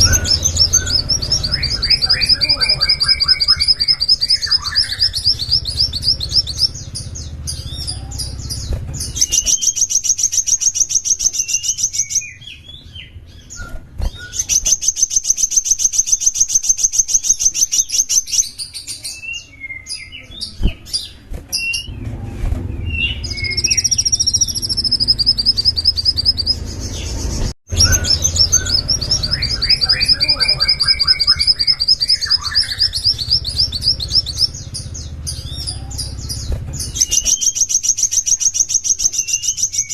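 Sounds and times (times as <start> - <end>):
songbird trilling: 0.0 - 22.0, 22.8 - 39.9
bird twittering: 0.0 - 39.9.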